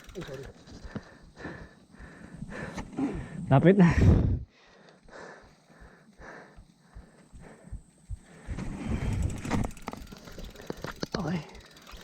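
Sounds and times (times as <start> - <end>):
cyclist breathing hard: 0.1 - 11.0.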